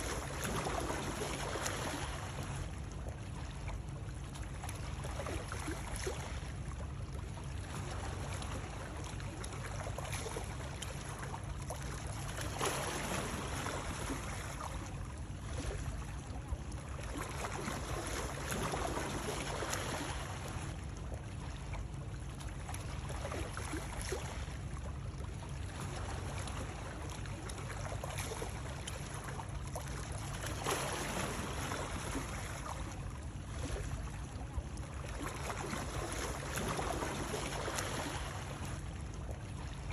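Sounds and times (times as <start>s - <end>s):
rushing water: 0.0s - 2.7s.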